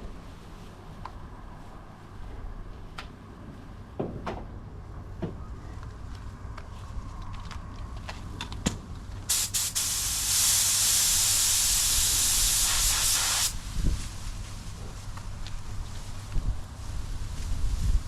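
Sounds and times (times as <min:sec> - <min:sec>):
spray gun hissing: 0:09.3 - 0:13.7
wind rumbling on microphone: 0:12.0 - 0:18.0.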